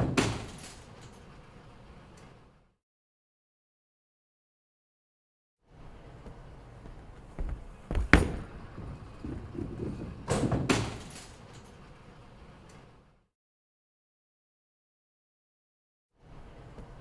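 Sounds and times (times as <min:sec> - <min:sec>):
sharp knocks and bangs: 0:07.0 - 0:09.6.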